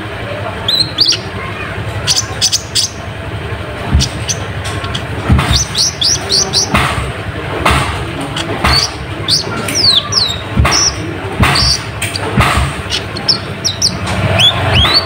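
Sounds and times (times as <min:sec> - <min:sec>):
sunbird chirping: 0:00.6 - 0:01.4, 0:02.0 - 0:03.2, 0:03.9 - 0:06.8, 0:08.3 - 0:15.0
low thumps: 0:01.9 - 0:15.0.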